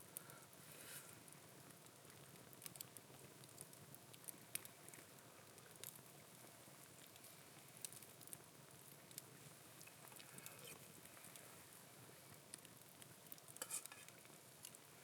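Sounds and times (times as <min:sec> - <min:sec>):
low steady hiss: 0:00.0 - 0:15.0
faint crackling ticks: 0:01.8 - 0:06.1, 0:06.9 - 0:11.5, 0:12.4 - 0:14.8.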